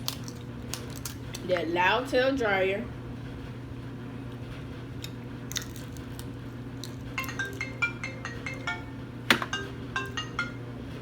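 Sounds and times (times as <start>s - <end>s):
clothes dryer hum: 0.0s - 11.0s
marimba phone ringtone: 7.2s - 11.0s.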